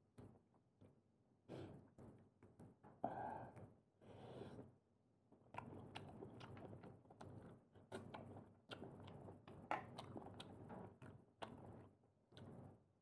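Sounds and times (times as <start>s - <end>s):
wet chewing mouth sounds: 5.4s - 12.6s.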